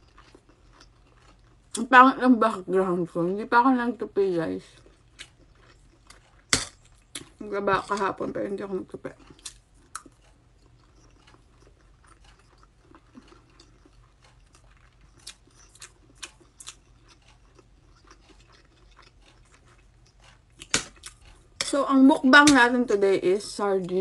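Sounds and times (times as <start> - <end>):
quiet chewing: 0.0 - 1.8, 4.6 - 8.2, 8.8 - 21.8.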